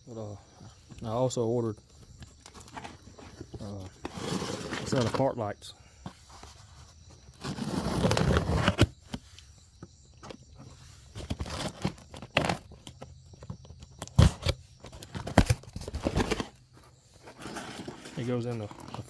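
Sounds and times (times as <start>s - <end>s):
packaging rustling and crinkling: 2.2s - 5.3s, 7.3s - 9.2s, 11.1s - 19.0s.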